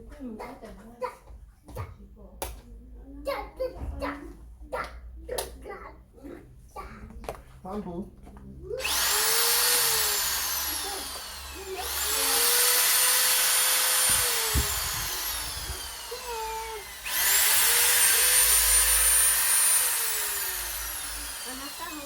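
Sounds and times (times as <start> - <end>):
power drill whining: 8.8 - 22.0.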